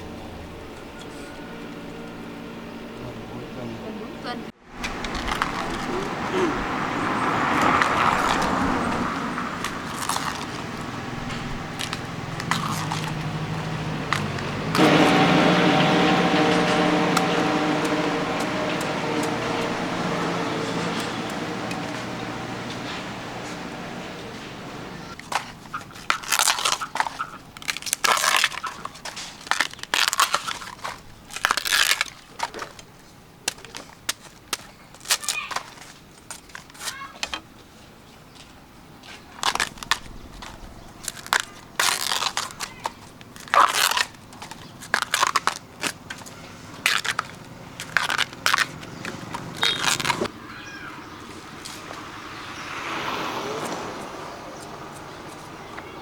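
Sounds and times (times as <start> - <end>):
bamboo sheaths tearing: 4.8 - 6.7, 7.5 - 18.1, 25.2 - 37.4, 39.1 - 50.3.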